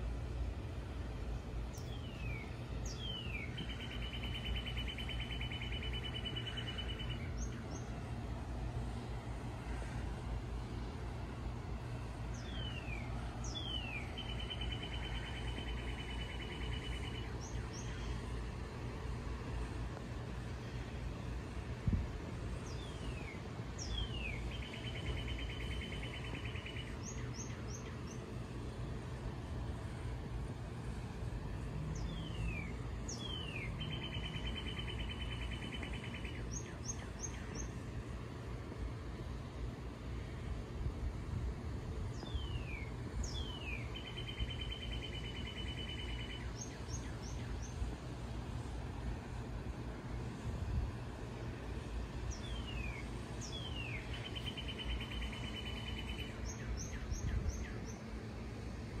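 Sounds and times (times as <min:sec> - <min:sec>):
steady low rumble: 0:00.0 - 0:59.0.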